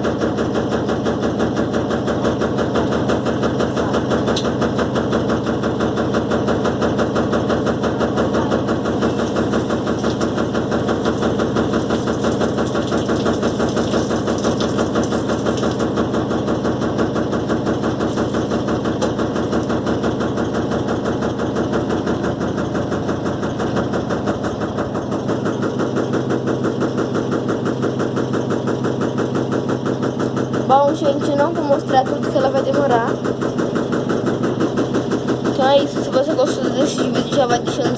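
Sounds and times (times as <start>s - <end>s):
washing machine spinning: 0.0s - 37.9s.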